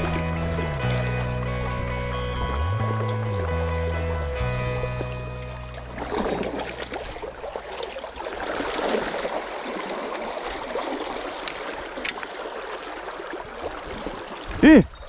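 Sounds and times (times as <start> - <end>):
background music: 0.0 - 6.8
stream rushing over rocks: 5.8 - 15.0.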